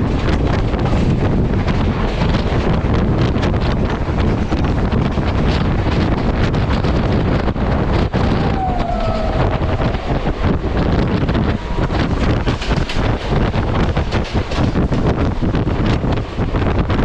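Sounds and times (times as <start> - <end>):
loud rumbling rush: 0.0 - 17.0
wind buffeting microphone: 0.0 - 17.0
falling squeal: 8.3 - 10.3.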